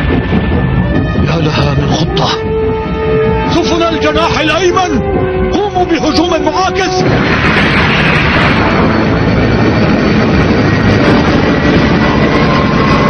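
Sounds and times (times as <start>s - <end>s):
spaceship jet-like roar: 6.7s - 13.0s.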